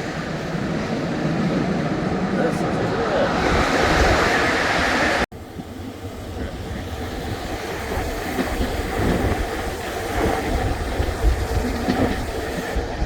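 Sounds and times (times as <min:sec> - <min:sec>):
train rumble: 0:00.0 - 0:13.0
train wheel clatter: 0:05.5 - 0:13.0.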